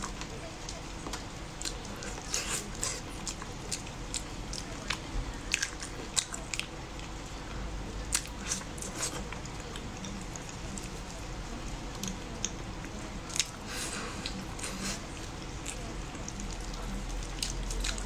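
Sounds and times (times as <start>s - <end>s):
person chewing: 0.0s - 7.1s, 8.1s - 11.1s, 13.3s - 18.0s.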